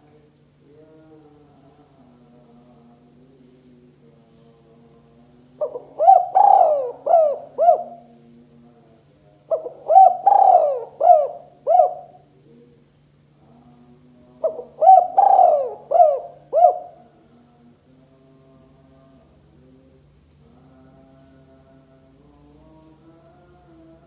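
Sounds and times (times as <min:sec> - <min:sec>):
faint steady hum: 0:00.0 - 0:24.0
dove cooing: 0:05.6 - 0:08.1, 0:09.5 - 0:12.2, 0:14.4 - 0:17.1.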